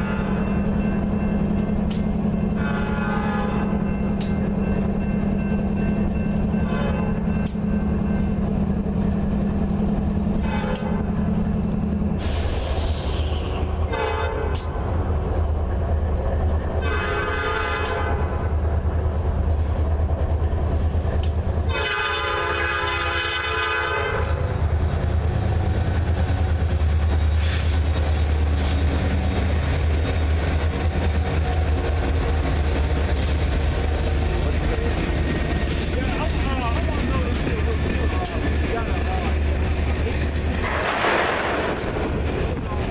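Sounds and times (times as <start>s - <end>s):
train horn blasts: 0.0s - 0.5s, 2.5s - 3.8s, 6.6s - 7.2s, 10.3s - 11.2s, 13.1s - 14.8s, 16.8s - 18.5s, 21.6s - 24.5s
locomotive rumbling: 0.0s - 42.9s.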